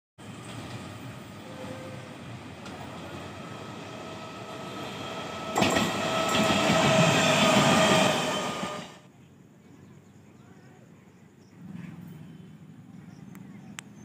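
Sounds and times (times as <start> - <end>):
train wheels rumbling on rails: 0.2 - 9.1
faint train whine: 0.2 - 13.8.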